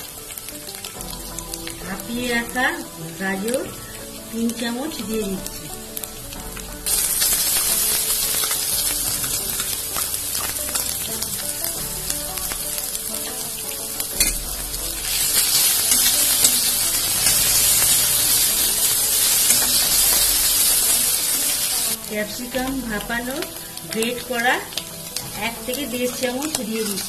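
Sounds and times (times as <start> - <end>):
oil sizzling in a wok: 0.0 - 27.0
metal spatula stirring: 6.8 - 21.6.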